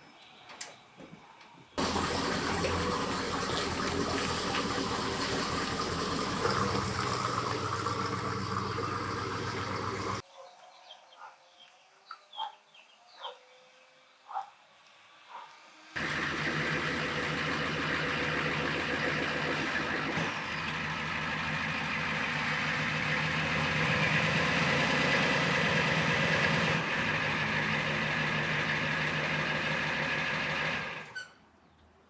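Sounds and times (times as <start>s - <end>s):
machine running with low hum: 1.8s - 10.2s, 16.0s - 29.7s.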